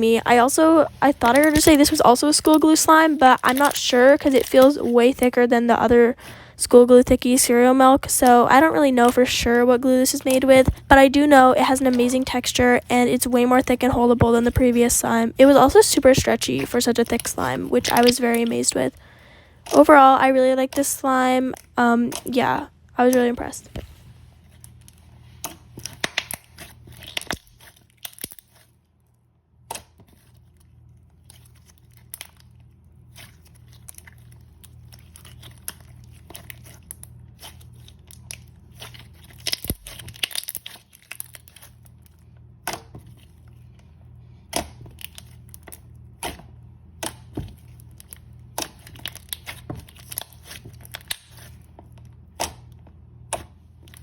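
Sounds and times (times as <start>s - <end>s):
hands squishing slime: 15.5s - 19.0s, 31.1s - 43.5s, 47.0s - 54.0s
crackles pops and tearing: 25.7s - 28.6s, 33.2s - 41.9s, 48.0s - 51.6s.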